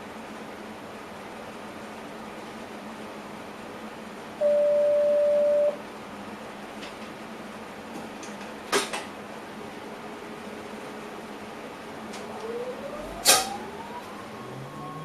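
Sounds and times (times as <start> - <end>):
electronic warning beep: 4.4 - 5.8
train cab running noise: 7.8 - 15.0.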